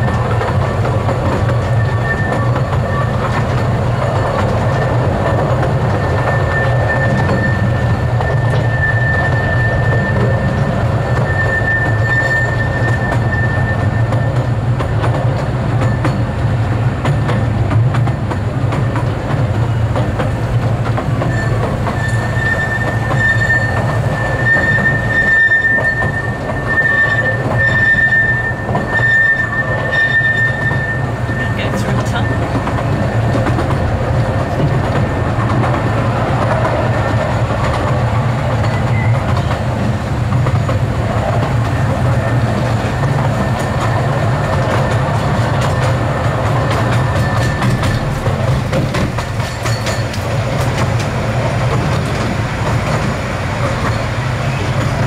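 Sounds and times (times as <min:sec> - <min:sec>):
train wheels rumbling on track: 0:00.0 - 0:55.0
high thin wheel squeal: 0:01.6 - 0:03.2, 0:05.9 - 0:14.6, 0:21.3 - 0:33.4, 0:46.8 - 0:48.1, 0:49.4 - 0:50.2.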